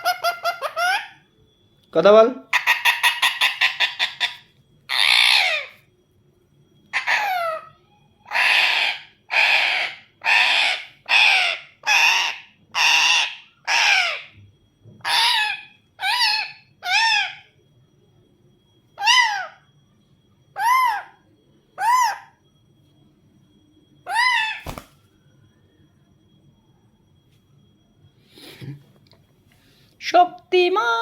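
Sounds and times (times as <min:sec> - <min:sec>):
parakeet screeching: 0:00.0 - 0:01.2, 0:02.5 - 0:05.9, 0:06.9 - 0:14.4, 0:15.0 - 0:17.6, 0:19.0 - 0:19.7, 0:20.5 - 0:22.4, 0:24.0 - 0:25.0.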